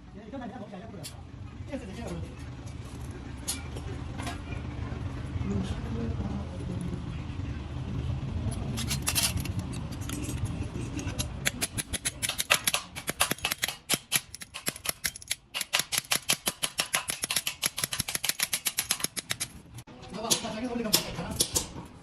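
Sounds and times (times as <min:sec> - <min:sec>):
fast sharp clicks or snips: 0:11.1 - 0:19.6.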